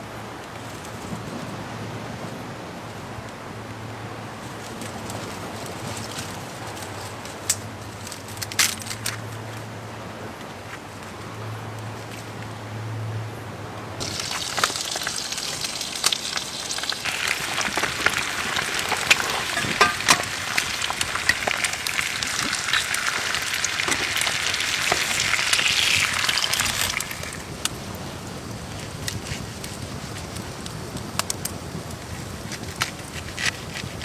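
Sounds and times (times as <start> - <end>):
sizzling hiss with sharp crackles: 14.0 - 33.5.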